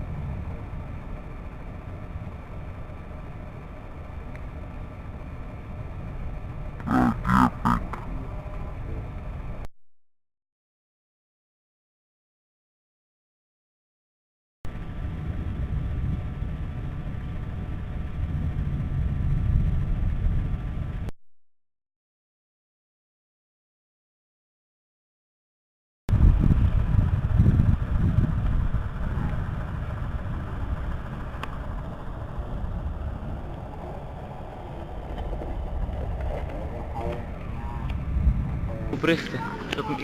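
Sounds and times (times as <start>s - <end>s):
thunderstorm rumble: 26.1s - 40.0s.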